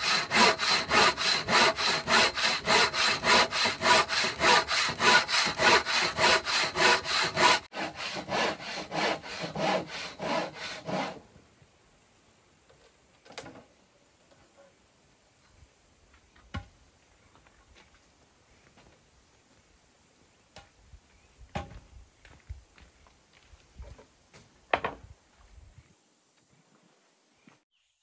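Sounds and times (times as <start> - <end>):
hand saw sawing: 0.0 - 11.2.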